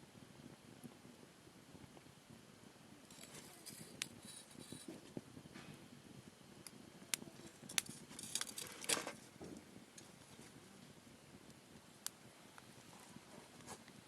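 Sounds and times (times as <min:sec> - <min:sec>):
wood campfire crackling: 0:00.0 - 0:14.0
sharp pops from fire: 0:03.0 - 0:12.8.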